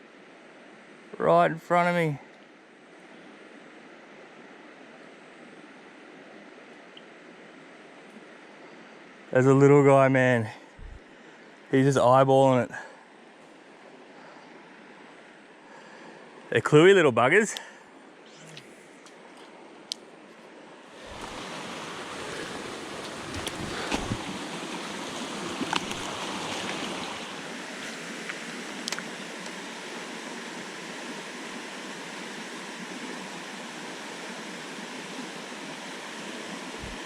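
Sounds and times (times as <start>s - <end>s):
creek running: 20.8s - 37.0s.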